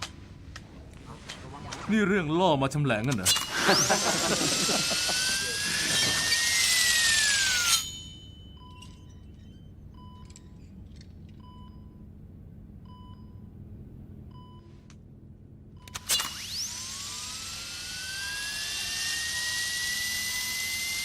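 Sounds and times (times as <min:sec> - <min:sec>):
bone saw whining: 0:03.3 - 0:08.2, 0:16.0 - 0:21.0.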